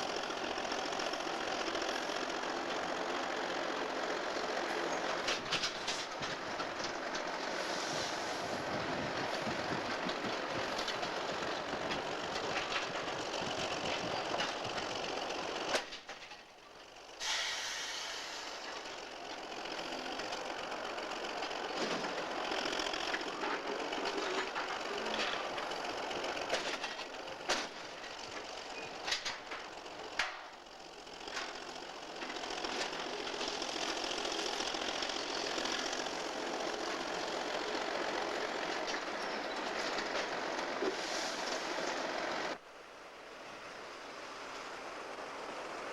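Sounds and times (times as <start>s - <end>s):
locomotive engine drone: 0.0s - 45.9s.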